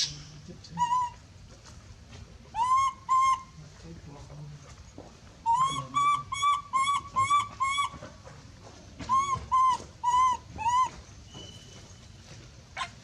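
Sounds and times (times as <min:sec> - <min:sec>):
monkey distress calls: 0:00.0 - 0:01.2, 0:02.5 - 0:03.6, 0:05.4 - 0:08.1, 0:09.0 - 0:11.0.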